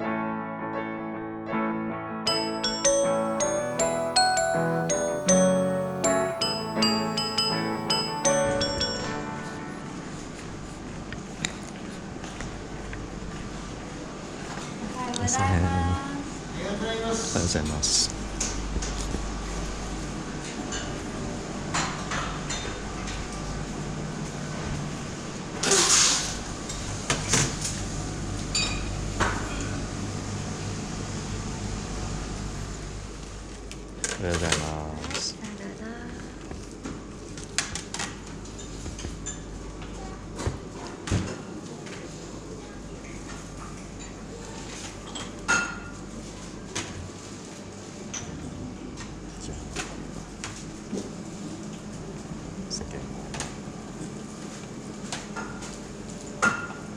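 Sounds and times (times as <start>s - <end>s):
tableware clinking: 2.3s - 9.2s
room noise: 2.3s - 33.7s.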